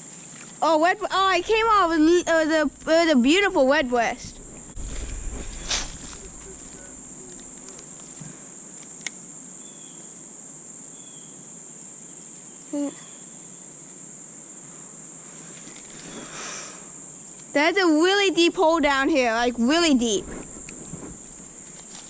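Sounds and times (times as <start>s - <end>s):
crickets trilling: 0.0s - 22.0s
short low sound: 1.4s - 7.7s.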